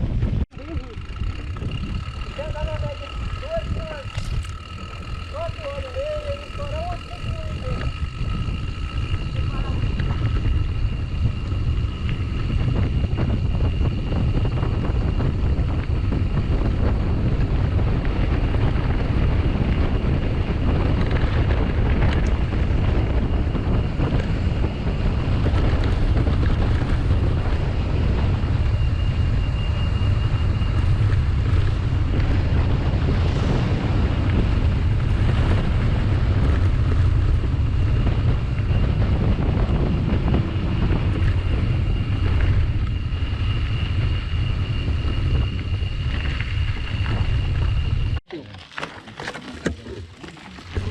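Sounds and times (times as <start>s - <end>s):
wind buffeting microphone: 0.0s - 48.3s, 49.2s - 50.9s
thin high whine: 0.6s - 16.2s.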